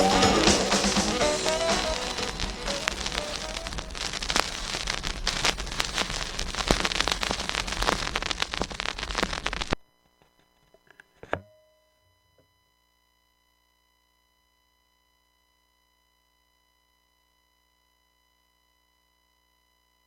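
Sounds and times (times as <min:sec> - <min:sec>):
crackling hiss with sharp clicks: 0:00.0 - 0:09.8
brief tone: 0:09.8 - 0:20.0.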